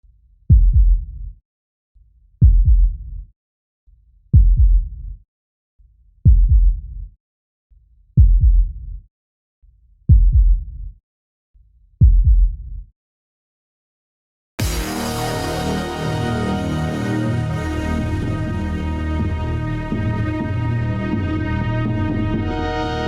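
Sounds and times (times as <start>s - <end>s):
deep heartbeat-like double thump: 0.5s - 1.4s, 2.4s - 3.3s, 4.3s - 5.2s, 6.2s - 7.1s, 8.2s - 9.0s, 10.1s - 11.0s, 12.0s - 12.9s.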